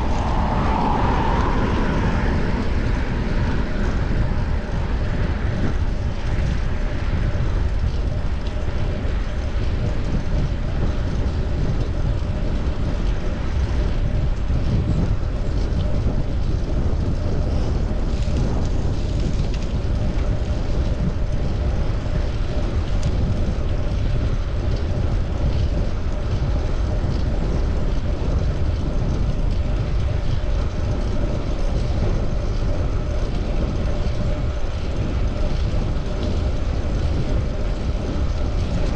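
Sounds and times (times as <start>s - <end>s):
road and traffic noise: 0.0s - 10.8s
wind on microphone: 0.0s - 38.9s.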